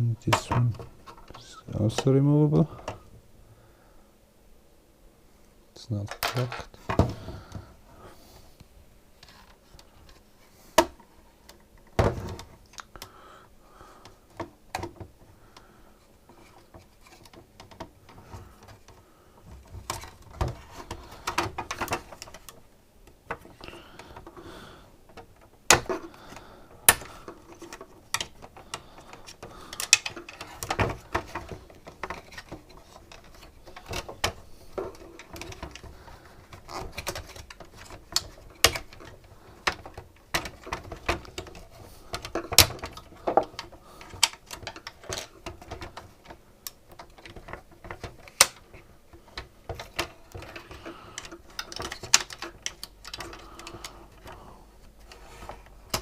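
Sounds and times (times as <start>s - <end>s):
plastic and metal parts rattling: 0.2s - 3.1s, 6.0s - 7.7s, 16.3s - 56.0s.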